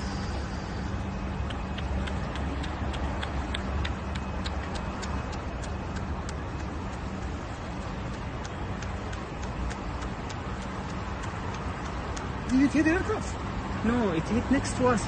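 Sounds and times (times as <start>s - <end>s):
low rumble and hum: 0.0s - 12.7s
regular light ticking: 0.8s - 13.2s.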